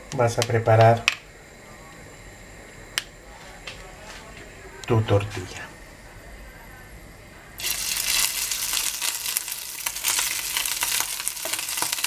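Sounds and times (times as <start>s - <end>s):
food frying in hot oil: 7.6s - 12.0s.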